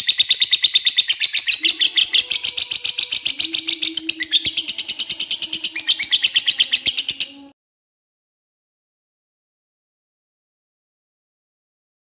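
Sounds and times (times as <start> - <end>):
lovebird chattering song: 0.0 - 7.5.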